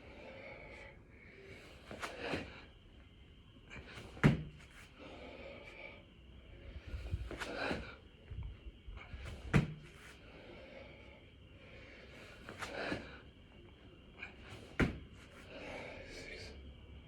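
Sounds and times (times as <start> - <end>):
body thudding on floor: 4.0 - 4.7, 9.3 - 10.0, 14.6 - 15.2.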